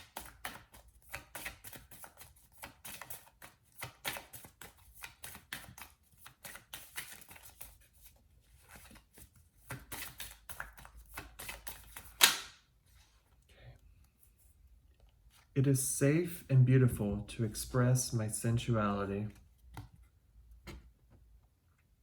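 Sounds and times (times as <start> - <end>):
cards being shuffled: 0.0 - 12.6.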